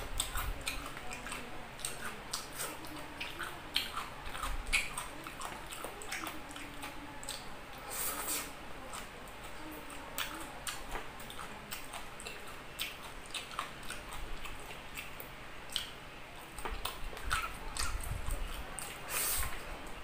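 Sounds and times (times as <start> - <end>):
wet chewing: 0.0 - 20.0
lip-smacking clicks: 10.2 - 19.0.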